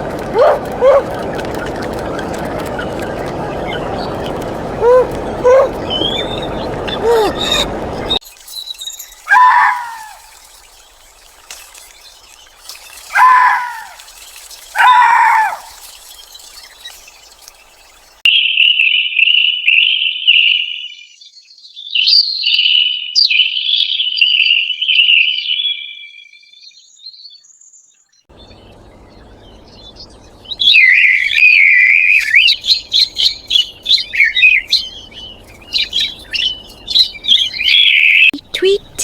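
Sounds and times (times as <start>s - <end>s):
songbird chirping and warbling: 0.0s - 39.0s.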